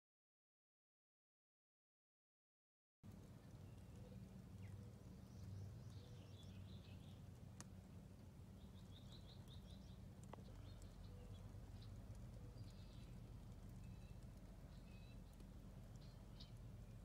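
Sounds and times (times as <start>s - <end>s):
distant birds chirping: 3.0s - 17.0s
steady low hum: 3.0s - 17.0s
faint clicks: 7.2s - 7.8s, 8.8s - 17.0s.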